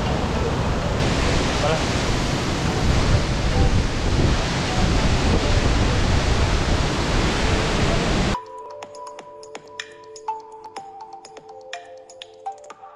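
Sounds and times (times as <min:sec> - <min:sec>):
waterfall roaring: 0:00.0 - 0:08.4
quiet electronic music: 0:02.5 - 0:12.9.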